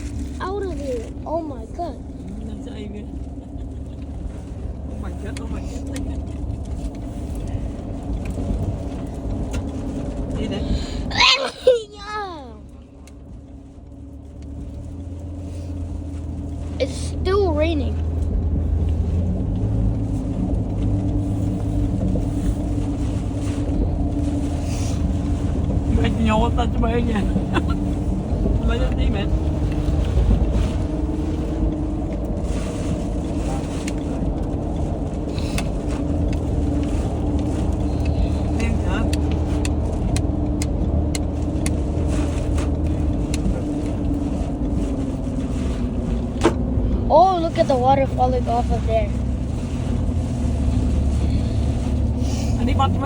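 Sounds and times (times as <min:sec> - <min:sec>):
car engine and road noise: 0:00.0 - 0:53.0
turn signal ticking: 0:33.8 - 0:53.0.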